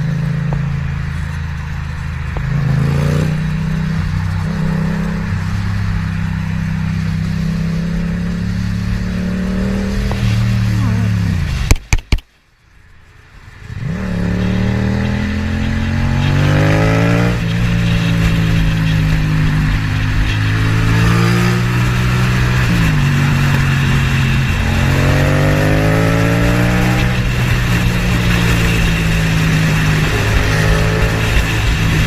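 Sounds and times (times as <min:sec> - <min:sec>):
vehicle engine accelerating: 0:00.0 - 0:11.8, 0:13.4 - 0:32.0
steady low drone: 0:13.1 - 0:32.0.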